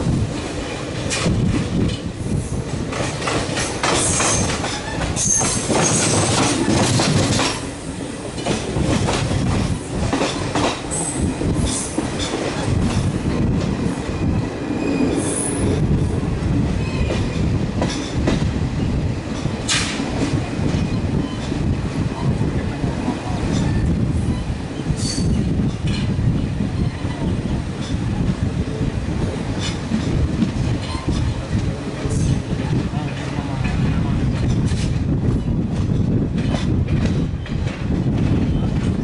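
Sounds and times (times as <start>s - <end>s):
train rumbling on track: 0.0s - 39.0s
wheels clattering over rail joints: 29.6s - 39.0s.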